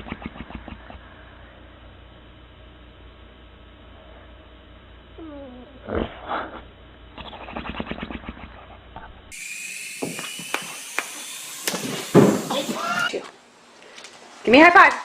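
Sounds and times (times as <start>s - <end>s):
rapid pulsing animal sounds: 0.0s - 1.0s, 7.2s - 8.8s.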